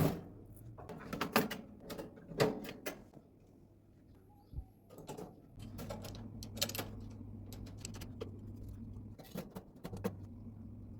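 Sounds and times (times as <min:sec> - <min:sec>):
steady low hum: 0:03.6 - 0:10.9.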